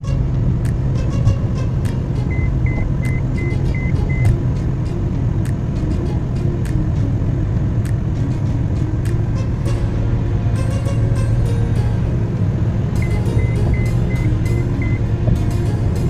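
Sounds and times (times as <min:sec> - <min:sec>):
car road and engine rumble: 0:00.0 - 0:16.0
high beeps: 0:02.3 - 0:04.4, 0:13.0 - 0:15.0.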